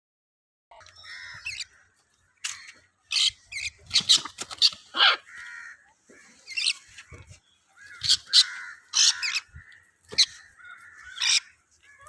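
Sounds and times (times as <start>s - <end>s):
parrots squawking: 0.9s - 1.8s, 2.4s - 5.8s, 6.4s - 7.1s, 7.8s - 12.0s.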